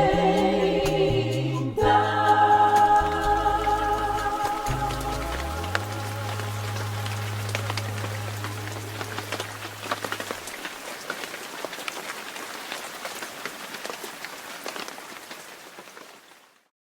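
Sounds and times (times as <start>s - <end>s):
held low note: 0.0s - 10.4s
rain falling: 1.8s - 16.7s.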